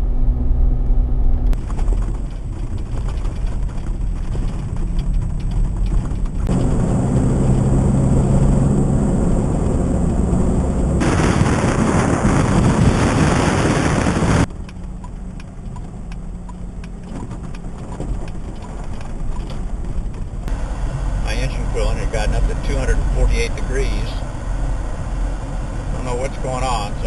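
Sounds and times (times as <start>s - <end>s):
rumbling road noise: 0.0s - 27.0s
vehicle engine hum: 0.0s - 27.0s
loud rushing noise: 6.4s - 14.5s, 20.5s - 27.0s
light ticks: 14.5s - 17.6s.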